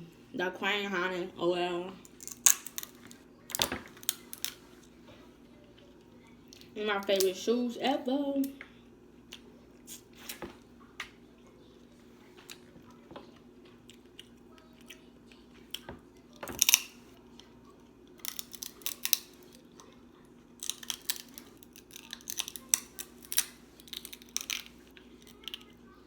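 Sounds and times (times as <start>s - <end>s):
chewing and crunching: 8.6s - 26.0s.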